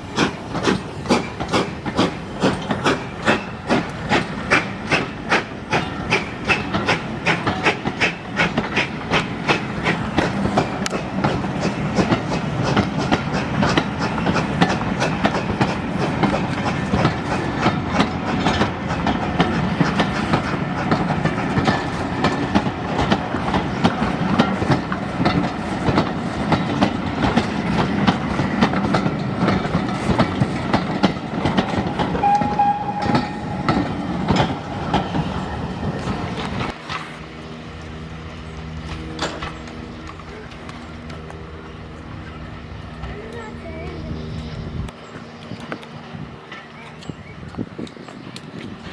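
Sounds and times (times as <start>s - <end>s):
train running noise: 0.0s - 48.9s
train wheels clicking over rail joints: 0.0s - 48.9s
short single tone: 32.2s - 33.4s.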